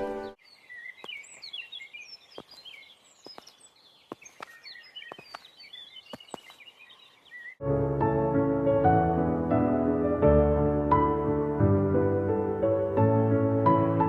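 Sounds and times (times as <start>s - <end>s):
songbirds twittering: 0.0s - 7.6s.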